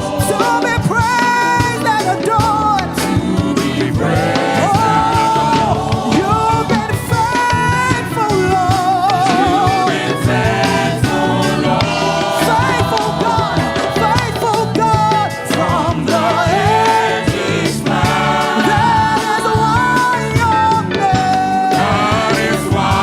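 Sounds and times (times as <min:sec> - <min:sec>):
full band playing: 0:00.0 - 0:23.0
gospel singing with vibrato: 0:00.0 - 0:23.0.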